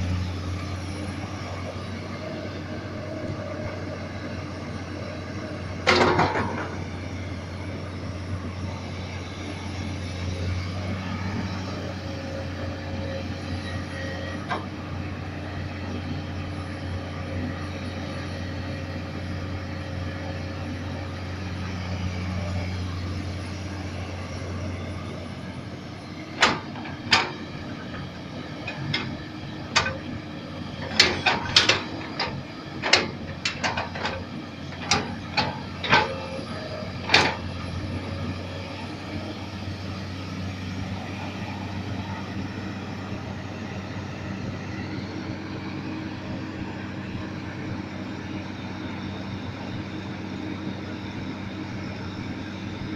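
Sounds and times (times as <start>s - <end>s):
excavator diesel engine running: 0.0s - 52.9s
sharp metal clanks and knocks: 26.4s - 27.4s, 30.8s - 36.2s.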